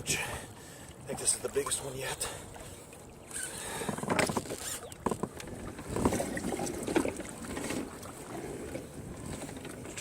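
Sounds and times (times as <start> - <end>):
wind: 0.0 - 10.0
kayak gear knocking and clicking: 3.4 - 7.9.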